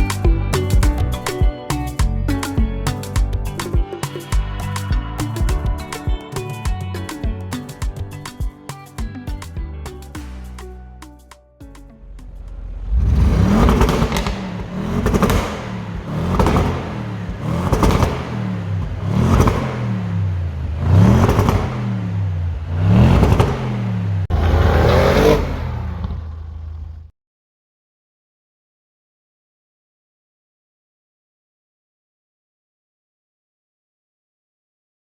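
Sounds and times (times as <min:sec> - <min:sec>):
car engine revving: 0:12.0 - 0:27.1.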